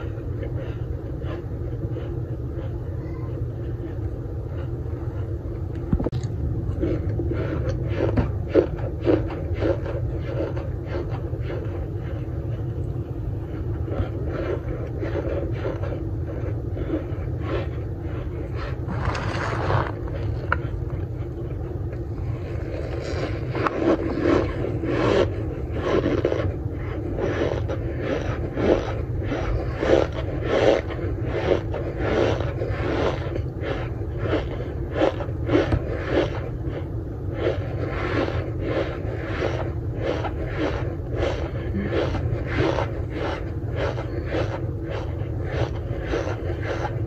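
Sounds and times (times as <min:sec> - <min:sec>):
low hum: 0:00.0 - 0:47.0
cornstarch crunching squeakily: 0:17.5 - 0:20.8, 0:22.3 - 0:47.0.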